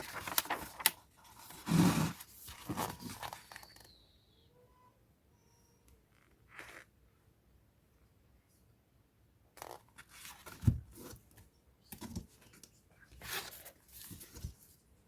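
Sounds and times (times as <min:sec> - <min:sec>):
paper and packaging rustling: 0:00.0 - 0:03.9, 0:13.2 - 0:14.8.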